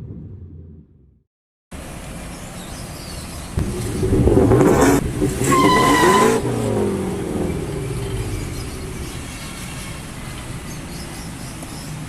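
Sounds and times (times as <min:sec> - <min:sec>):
pickup engine revving: 0:03.6 - 0:10.8
high squeal: 0:05.4 - 0:06.8.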